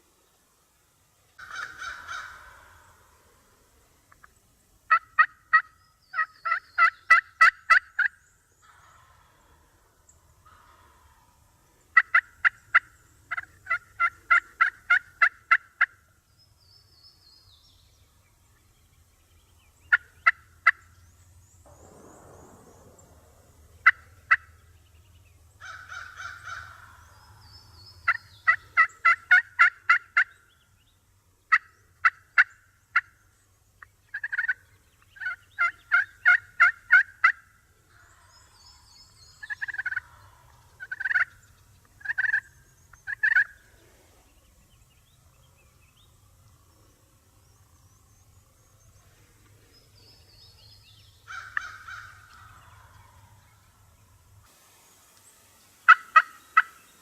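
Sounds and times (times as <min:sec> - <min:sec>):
turkeys yelping: 0:01.4 - 0:03.5, 0:04.9 - 0:16.1, 0:23.7 - 0:24.6, 0:25.6 - 0:30.4, 0:34.1 - 0:34.6, 0:35.2 - 0:38.8, 0:39.4 - 0:43.6, 0:51.3 - 0:53.7, 0:55.9 - 0:56.8
faint low hum: 0:16.0 - 0:29.0
turkey gobbles: 0:39.4 - 0:43.8.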